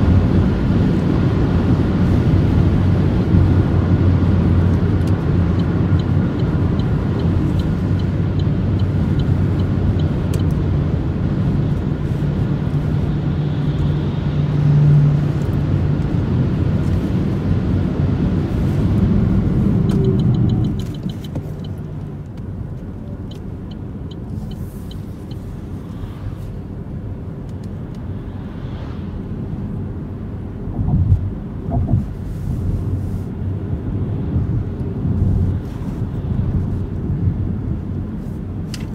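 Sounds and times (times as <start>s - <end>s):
tyre and wind rumble: 0.0s - 23.3s.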